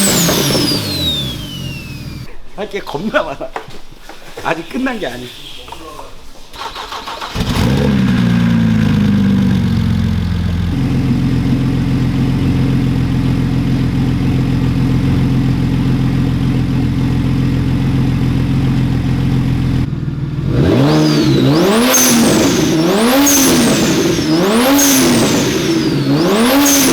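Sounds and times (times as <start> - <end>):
car engine idling and revving: 0.0 - 2.3, 6.6 - 26.9
turbo whistle: 20.8 - 26.9.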